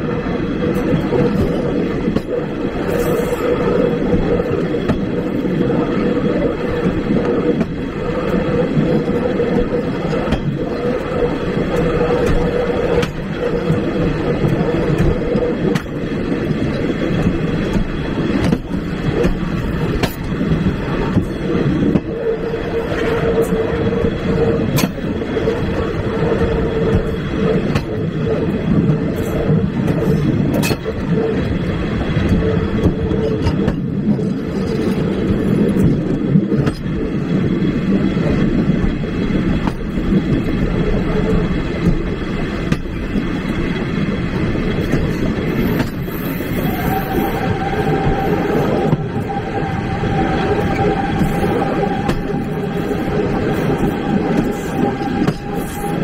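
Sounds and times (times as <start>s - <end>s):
train carriage rumble: 0.0s - 56.0s
wheels clicking over rail joints: 0.0s - 56.0s
humming tone: 45.8s - 56.0s.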